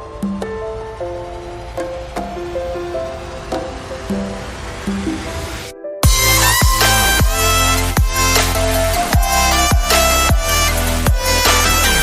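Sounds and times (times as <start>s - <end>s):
deep falling bass sweeps: 0.1s - 12.0s
electronic music with heavy bass beat: 6.0s - 12.0s.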